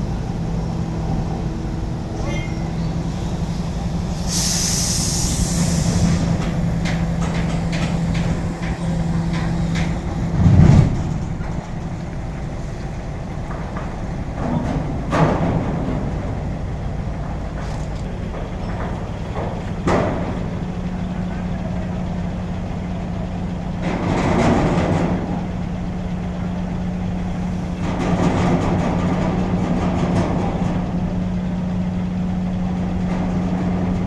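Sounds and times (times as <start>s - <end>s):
truck diesel engine running: 0.0s - 34.0s
air hiss: 3.2s - 9.7s
metal clanks and knocks: 5.4s - 34.0s.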